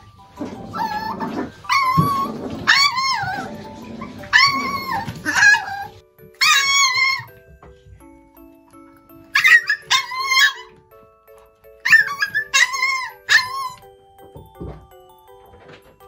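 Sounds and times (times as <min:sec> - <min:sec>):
background music: 0:00.0 - 0:16.0
small dog yapping: 0:04.2 - 0:07.3, 0:11.9 - 0:13.8.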